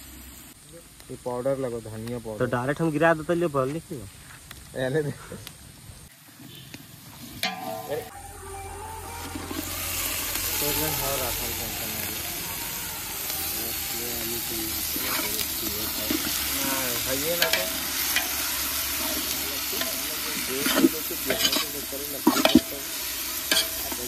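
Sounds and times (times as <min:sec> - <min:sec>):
chicken sizzling in hot oil: 0:09.2 - 0:24.0
metal ladle scraping a pot: 0:14.9 - 0:24.0.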